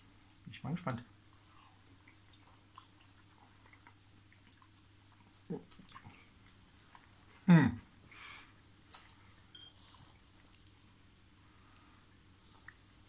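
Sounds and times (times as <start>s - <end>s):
person chewing noodles: 1.3s - 7.3s, 9.6s - 12.9s.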